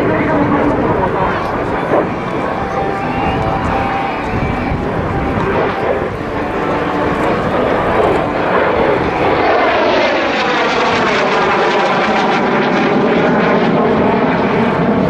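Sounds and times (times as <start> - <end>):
jets flying past: 0.0 - 15.0.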